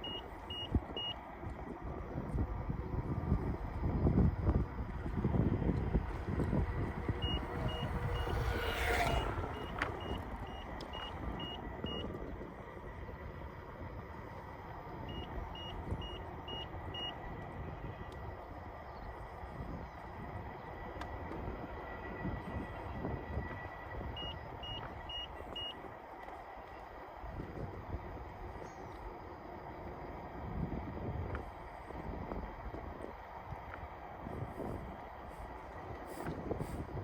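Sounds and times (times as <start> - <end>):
high warning beeps: 0.0 - 1.2, 6.9 - 12.2, 15.1 - 17.2, 24.1 - 25.8
wind and tyre noise: 0.0 - 37.0.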